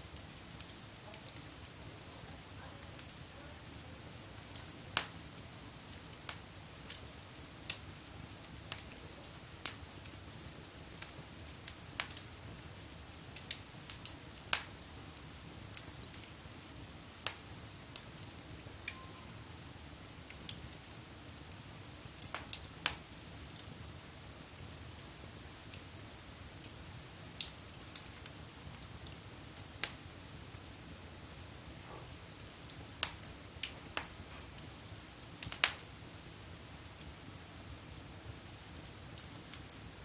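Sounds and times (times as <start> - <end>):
steady low hiss: 0.0 - 40.0
wood fire crackling: 0.0 - 40.0
sharp pops of fire: 4.4 - 12.4, 13.3 - 19.2, 20.3 - 25.1, 25.7 - 30.2, 31.2 - 34.7, 35.4 - 36.0.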